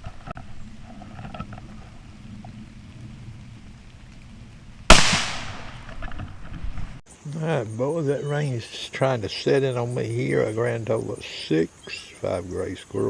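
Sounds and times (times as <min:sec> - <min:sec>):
rifle shot echoing: 0:04.9 - 0:06.0.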